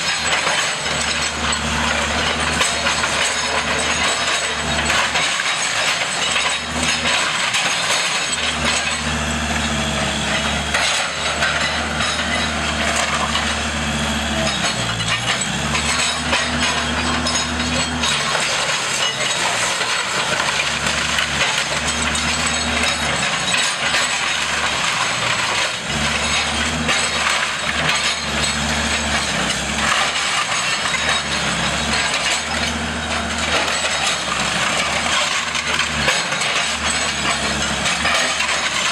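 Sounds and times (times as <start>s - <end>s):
demolition machine engine surging: 0.0s - 38.9s
wood timbers cracking and splintering: 15.8s - 38.9s.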